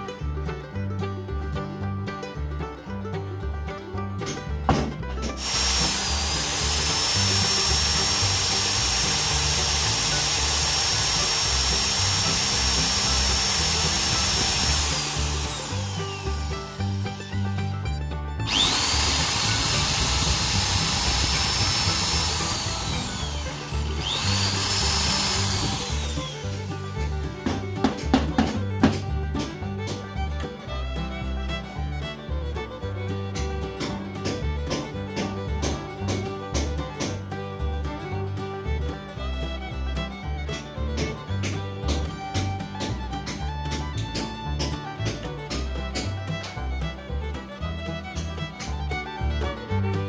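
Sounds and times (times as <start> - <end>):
background music: 0.0 - 50.0
electric power tool whining: 5.2 - 29.0.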